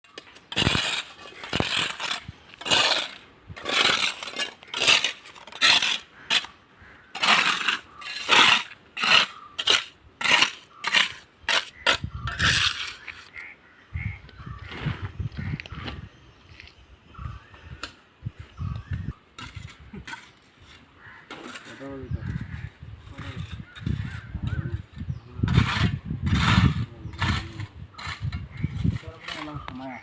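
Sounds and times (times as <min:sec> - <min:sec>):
trowel scraping and knocking bricks: 0:00.1 - 0:13.5, 0:19.4 - 0:29.8.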